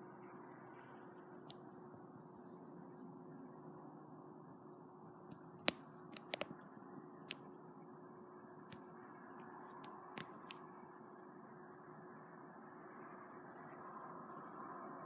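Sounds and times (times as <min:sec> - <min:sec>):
sharp dry clicks: 0:05.7 - 0:06.5, 0:09.7 - 0:10.6.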